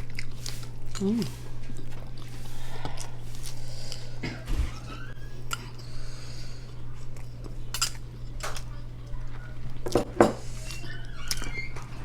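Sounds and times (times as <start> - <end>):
chewing: 0.0 - 4.3.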